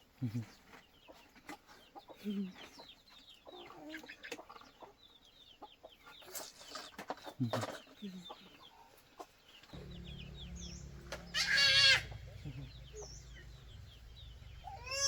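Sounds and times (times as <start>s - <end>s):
chickens clucking: 6.9s - 15.0s
chicks cheeping: 9.8s - 15.0s
loud wavering animal call: 9.8s - 15.0s
low steady hum: 9.8s - 15.0s.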